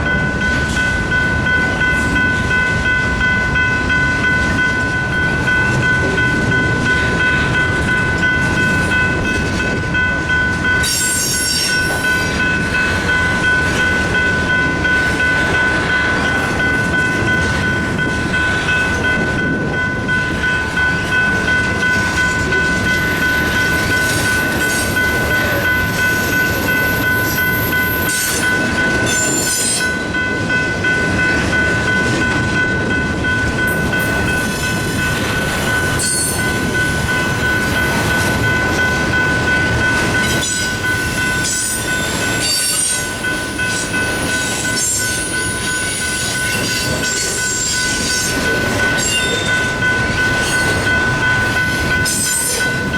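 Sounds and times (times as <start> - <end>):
crossing bell ringing: 0.0 - 52.9
train rumbling with wheel clatter: 0.0 - 52.9
high-pitched wheel squeals: 10.8 - 12.0, 29.1 - 29.9, 41.4 - 43.0.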